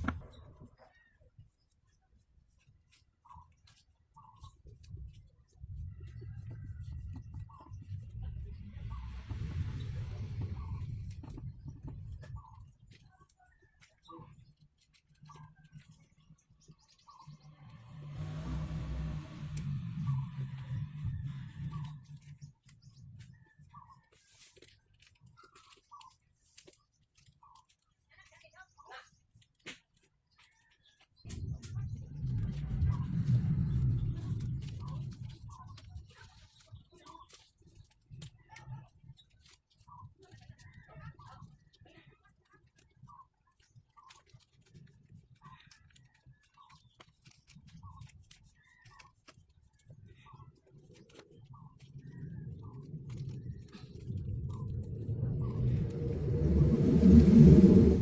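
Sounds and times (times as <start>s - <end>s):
faint bird chirps: 30.3s - 42.0s.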